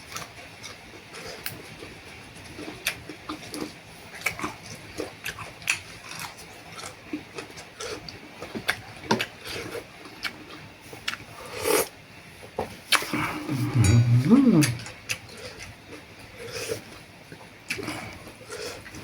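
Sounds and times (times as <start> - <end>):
person slurping noodles: 13.0 - 14.9.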